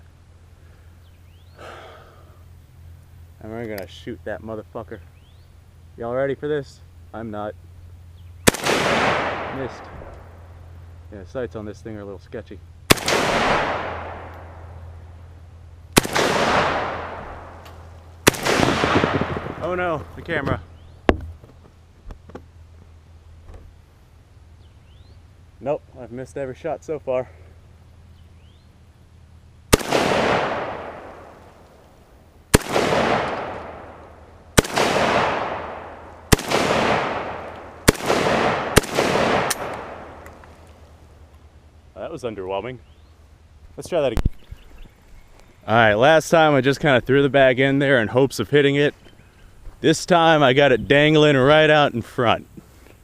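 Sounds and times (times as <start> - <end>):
rifle shots with long echo: 8.4 - 11.1, 12.8 - 20.9, 29.7 - 41.7.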